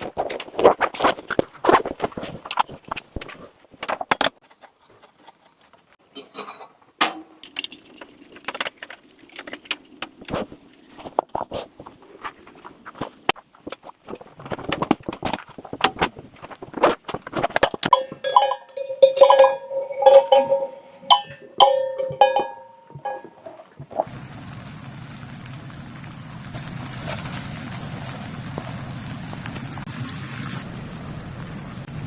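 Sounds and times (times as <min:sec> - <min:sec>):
hard objects clinking and knocking: 0:17.5 - 0:24.1
ringing metallic tone: 0:17.9 - 0:23.7.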